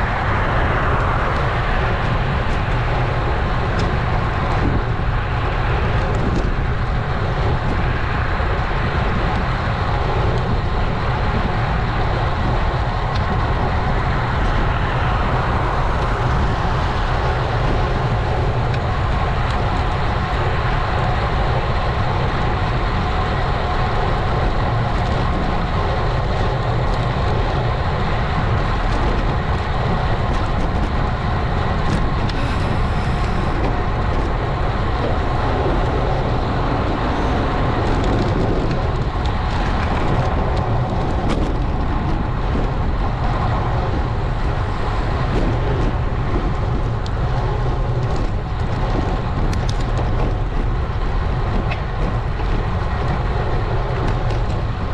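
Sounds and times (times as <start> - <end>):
tyres running on road: 0.0 - 54.9
wind buffeting microphone: 0.0 - 54.9.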